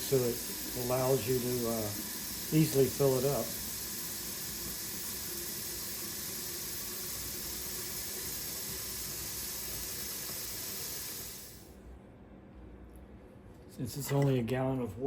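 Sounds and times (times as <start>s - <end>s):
tap water running into plastic tank: 0.0s - 11.3s.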